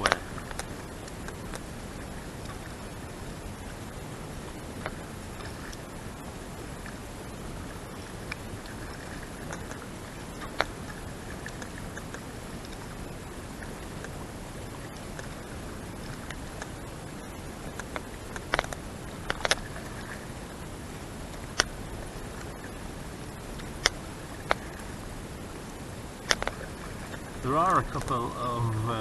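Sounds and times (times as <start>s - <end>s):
boat engine running: 27.4s - 29.0s.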